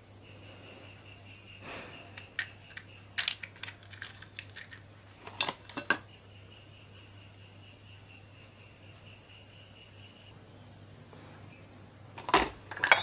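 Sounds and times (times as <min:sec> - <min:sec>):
metallic clicks of small parts: 0:02.1 - 0:06.0.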